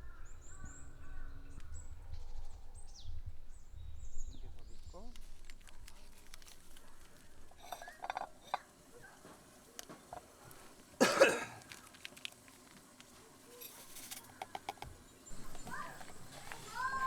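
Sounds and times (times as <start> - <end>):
person coughing: 11.0 - 11.6
faint clicks and taps: 11.6 - 17.0.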